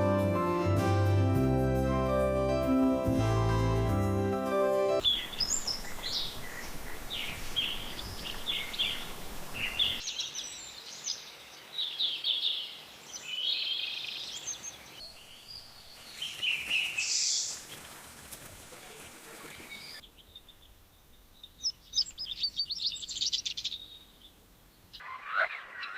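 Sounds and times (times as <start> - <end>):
outdoor background hiss: 5.0 - 25.8
songbirds chirping: 5.0 - 25.9.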